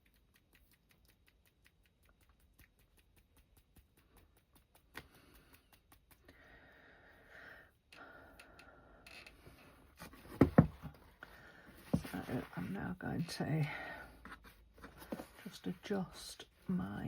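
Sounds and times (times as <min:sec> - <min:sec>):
paintbrush tapping: 0:00.1 - 0:06.3.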